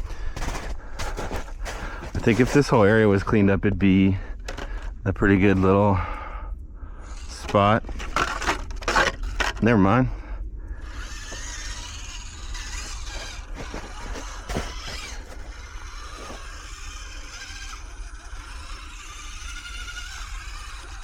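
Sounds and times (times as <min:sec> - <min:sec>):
small electric motor whining: 0:07.1 - 0:09.6, 0:10.8 - 0:21.0.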